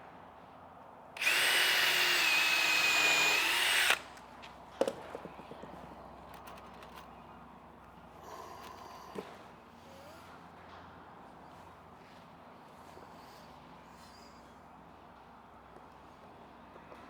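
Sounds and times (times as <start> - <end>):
power drill whining: 1.2 - 4.1.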